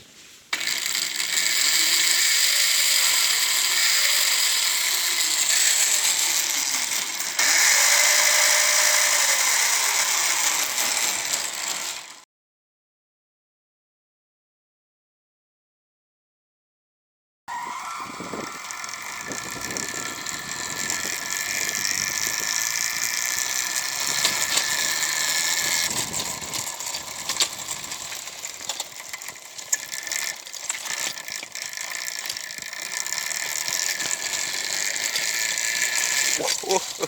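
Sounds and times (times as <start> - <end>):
electric motor whirring: 0.5 - 12.2, 17.5 - 37.0
chain rattle and clicks: 0.6 - 12.2, 18.6 - 37.0.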